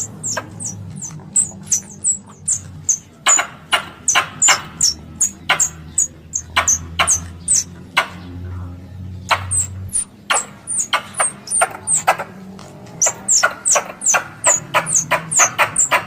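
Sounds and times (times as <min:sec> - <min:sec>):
squirrel chips: 0:00.0 - 0:07.7
steady low hum: 0:00.0 - 0:16.0.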